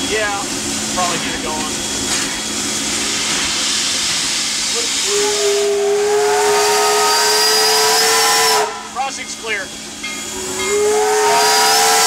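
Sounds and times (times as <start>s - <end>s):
locomotive steam hiss: 0.0s - 12.0s
steam whistle blast: 4.8s - 9.0s, 10.3s - 12.0s.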